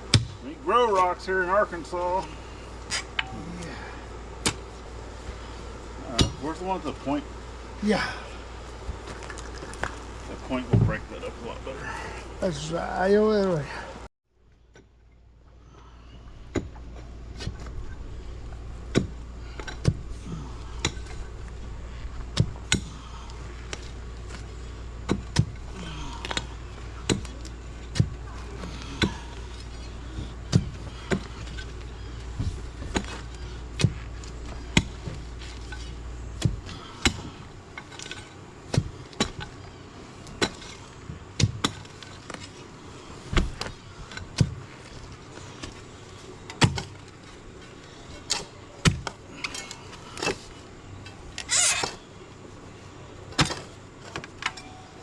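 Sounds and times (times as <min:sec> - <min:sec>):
low steady hum: 0:00.0 - 0:55.0
digging tool striking rocky ground: 0:20.7 - 0:21.2, 0:25.0 - 0:28.2, 0:32.8 - 0:34.0, 0:46.5 - 0:47.0, 0:53.4 - 0:53.7.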